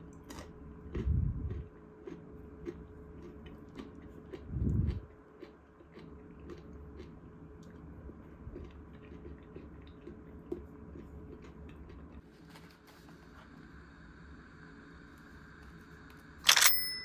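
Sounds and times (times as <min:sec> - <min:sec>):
person chewing food: 0:00.0 - 0:12.3
low room hum: 0:00.0 - 0:17.0.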